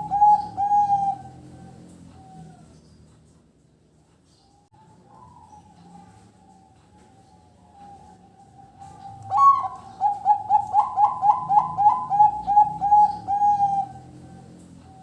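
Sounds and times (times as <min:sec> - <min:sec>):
dove cooing: 0:00.0 - 0:02.9, 0:04.8 - 0:15.0.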